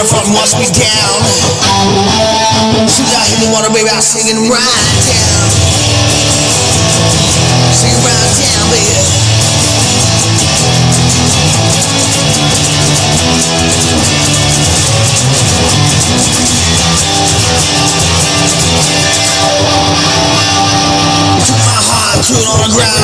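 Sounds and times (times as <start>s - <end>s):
bass guitar: 0.0s - 23.0s
electric guitar: 0.0s - 23.0s
drum kit with cymbal hits: 4.8s - 23.0s.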